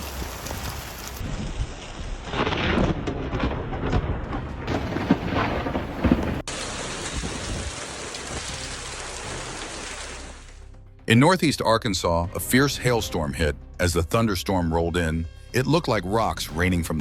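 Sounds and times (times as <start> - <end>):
gusting wind: 0.0 - 8.5
driving rain: 0.0 - 10.6.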